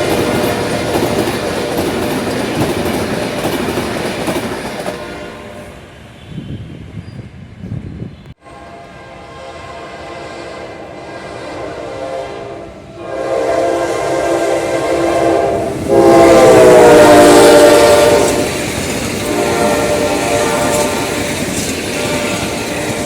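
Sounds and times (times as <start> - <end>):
train wheels clattering on rails: 0.0 - 5.4, 15.6 - 23.0
locomotive air horn blasts: 4.9 - 6.6, 8.4 - 23.0.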